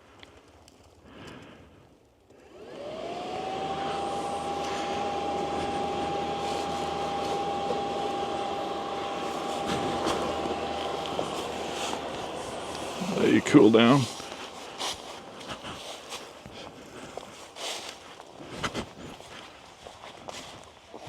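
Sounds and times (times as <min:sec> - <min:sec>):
cooling fan whine: 0:02.4 - 0:17.3.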